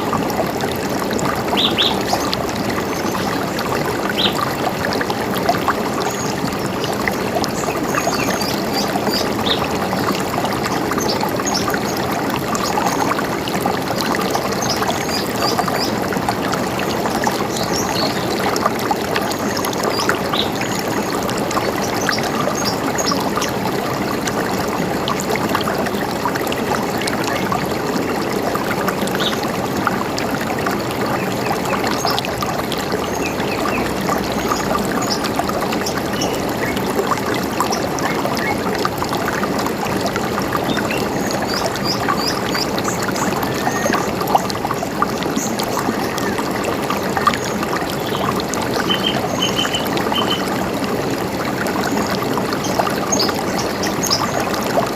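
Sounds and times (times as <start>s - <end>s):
river water running: 0.0s - 54.9s.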